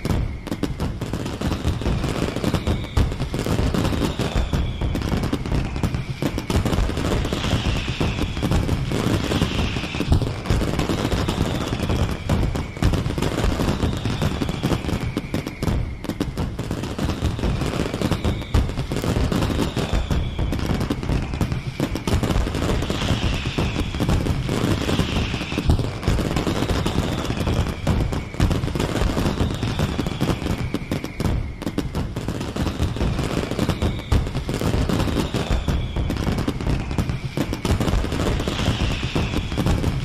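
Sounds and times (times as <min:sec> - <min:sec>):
falling firework whistle: 0:00.0 - 0:40.0
fireworks bangs and crackles: 0:00.0 - 0:40.0.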